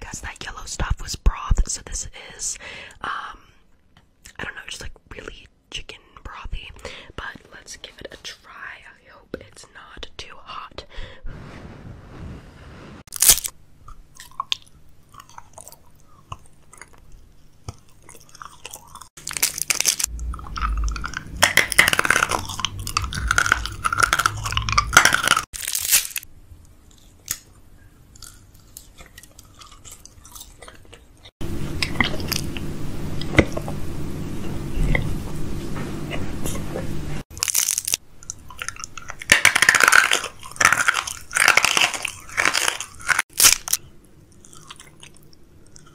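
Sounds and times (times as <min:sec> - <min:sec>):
crunchy chewing of food: 0:13.1 - 0:32.6, 0:37.3 - 0:45.9.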